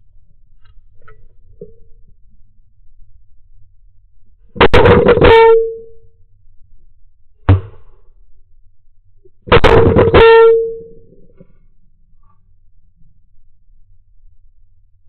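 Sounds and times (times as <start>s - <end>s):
sharp knock: 7.5s - 7.9s.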